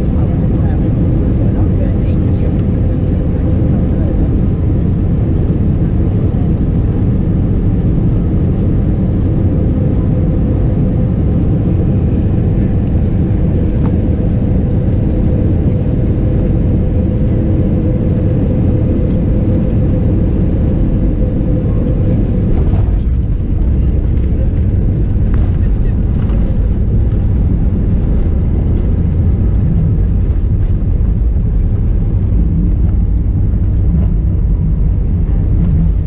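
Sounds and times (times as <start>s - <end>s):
airliner engine roar from cabin: 0.0s - 36.0s.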